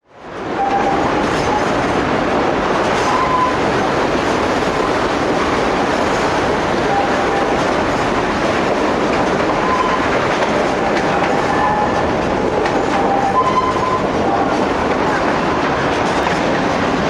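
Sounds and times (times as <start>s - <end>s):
train wheels clattering on rails: 0.2s - 17.0s
high wheel squeaks: 9.5s - 14.6s.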